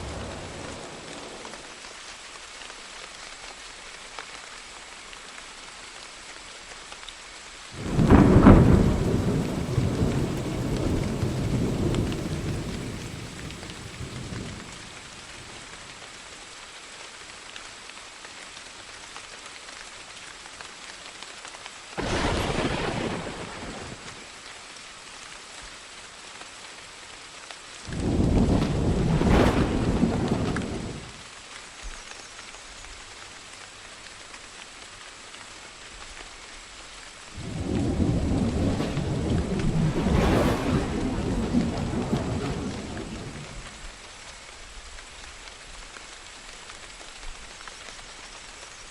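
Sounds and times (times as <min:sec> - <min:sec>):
steady rain: 0:00.0 - 0:48.9
thunder rumbling and cracking: 0:07.8 - 0:15.7, 0:22.0 - 0:24.2, 0:27.9 - 0:31.2, 0:37.4 - 0:44.0.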